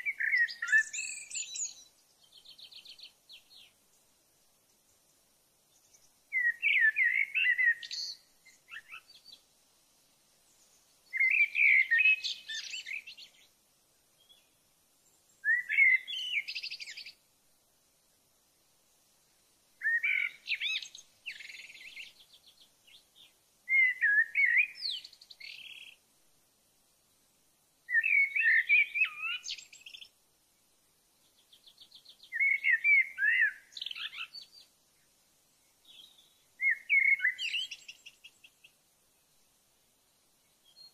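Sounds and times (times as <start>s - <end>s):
songbird warbling: 0.0s - 3.7s, 5.8s - 9.4s, 11.1s - 13.4s, 15.4s - 17.2s, 19.8s - 26.0s, 27.9s - 30.1s, 31.4s - 34.7s, 35.8s - 38.8s.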